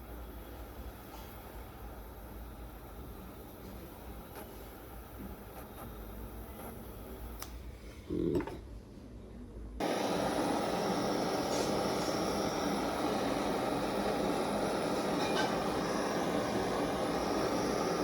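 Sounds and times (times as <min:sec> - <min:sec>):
torch flame rushing roar: 0:09.8 - 0:18.0.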